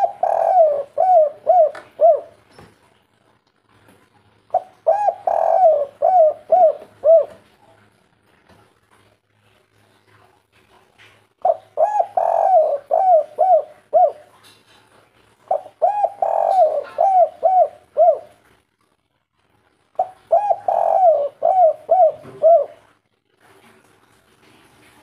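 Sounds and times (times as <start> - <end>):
dove cooing: 0.0 - 2.5, 4.5 - 7.5, 11.4 - 14.4, 15.5 - 18.4, 20.0 - 22.9.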